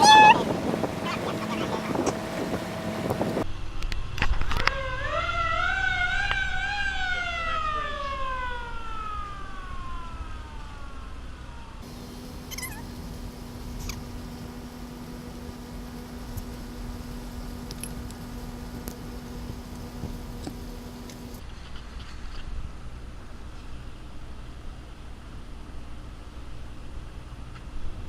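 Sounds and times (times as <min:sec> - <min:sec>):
siren wailing: 0:00.0 - 0:03.4, 0:04.6 - 0:13.0.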